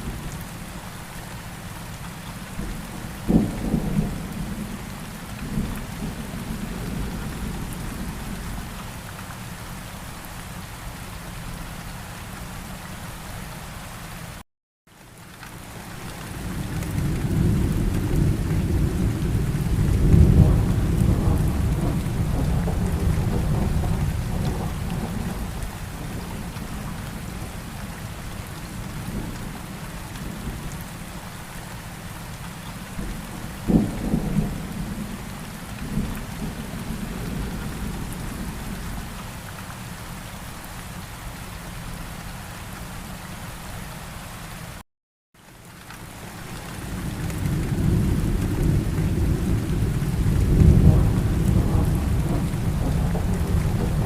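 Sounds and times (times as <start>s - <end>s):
steady rain: 0.0s - 44.8s, 45.4s - 54.0s
rolling thunder: 16.5s - 27.5s, 46.9s - 54.0s
sharp thunderclap: 47.5s - 54.0s.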